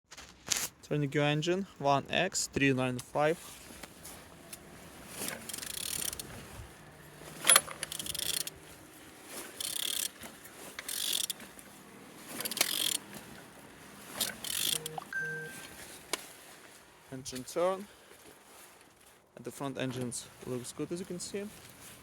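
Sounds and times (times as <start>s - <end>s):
metallic ratcheting and scraping: 4.0s - 8.7s, 9.3s - 11.5s, 12.2s - 13.4s, 14.1s - 15.0s.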